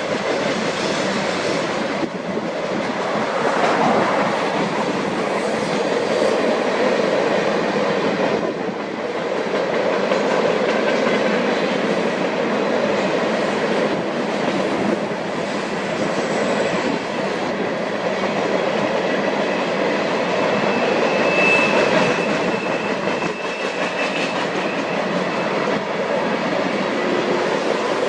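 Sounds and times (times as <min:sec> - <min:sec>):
train wheels rumbling on rails: 0:00.0 - 0:28.0
high wheel squeal: 0:20.4 - 0:25.8.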